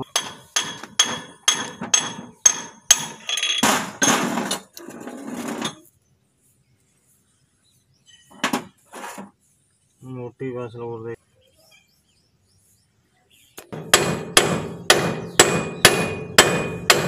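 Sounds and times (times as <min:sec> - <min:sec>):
hammer striking steel: 0:00.0 - 0:04.3, 0:13.7 - 0:17.0
rough scraping metal sound: 0:03.1 - 0:06.0, 0:08.1 - 0:09.6.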